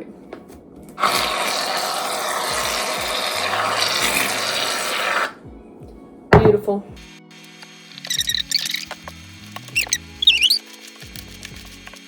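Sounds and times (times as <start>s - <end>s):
aerosol can spraying foam: 1.0s - 5.4s, 7.1s - 12.0s.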